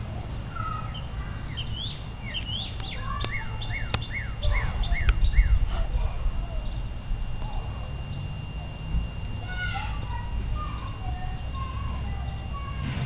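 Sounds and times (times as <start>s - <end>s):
songbirds chirping: 0.0s - 12.8s
low rumble: 3.4s - 11.9s.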